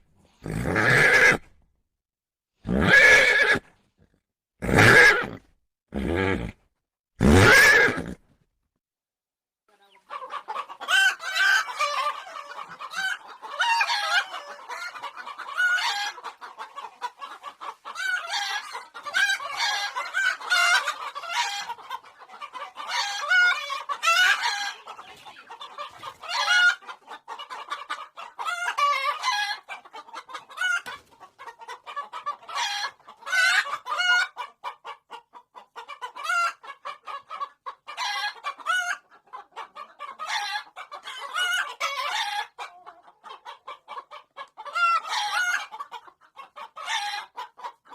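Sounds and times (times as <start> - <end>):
chickens clucking: 9.7 - 47.9.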